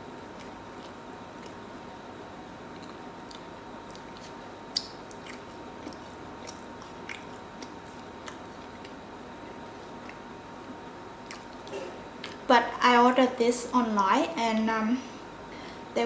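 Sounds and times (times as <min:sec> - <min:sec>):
person chewing food: 0:00.3 - 0:01.7, 0:02.7 - 0:09.1, 0:09.7 - 0:12.4.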